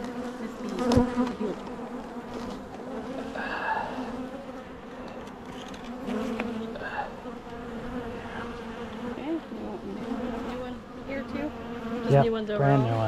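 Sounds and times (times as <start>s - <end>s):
bee passing close: 0.0s - 13.0s
honeybees buzzing: 0.0s - 13.0s.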